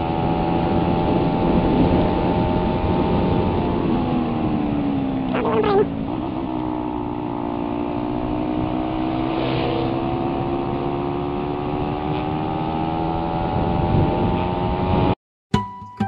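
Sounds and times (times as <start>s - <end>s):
motorcycle engine accelerating: 0.0s - 15.2s
wind rush: 8.2s - 11.5s.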